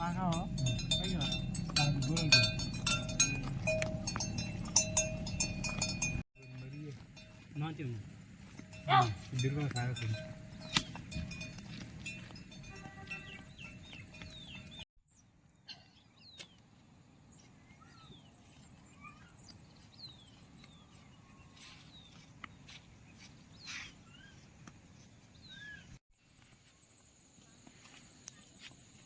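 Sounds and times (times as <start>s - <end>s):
ringing tones: 0.0s - 7.9s, 8.6s - 14.8s
birds chirping: 0.0s - 26.0s.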